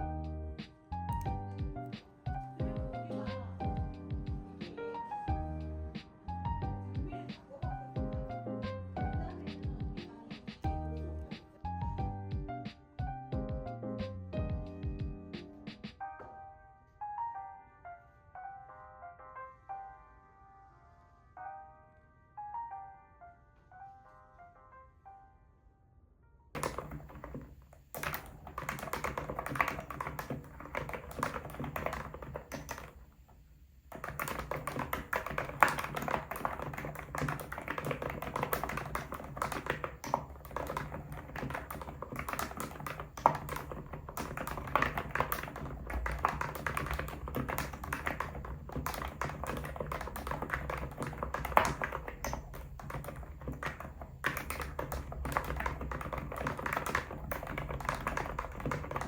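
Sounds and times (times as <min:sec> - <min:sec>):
fast typing on computer keyboard: 0:26.6 - 0:33.2, 0:33.9 - 0:59.0.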